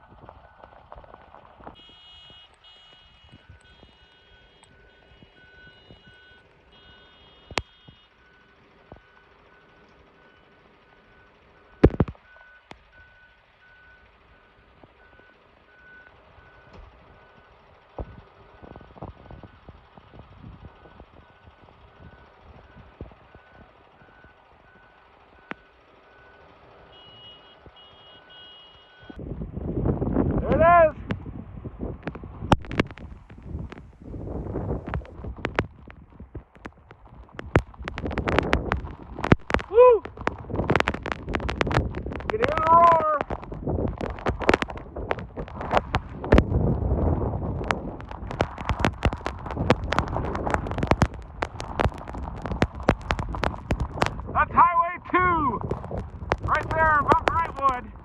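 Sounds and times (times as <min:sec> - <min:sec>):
vehicle warning beeper: 0:00.4 - 0:19.6, 0:20.7 - 0:29.2
multi-tone alarm pulsing: 0:01.8 - 0:09.2
faint low rumble: 0:29.1 - 0:58.0.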